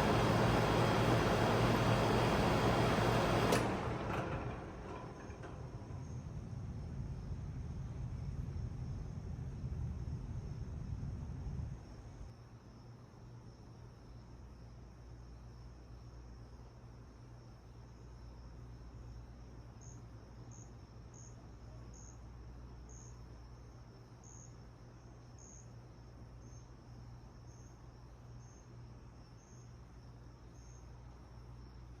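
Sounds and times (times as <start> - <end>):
insect chirping: 11.8 - 32.0.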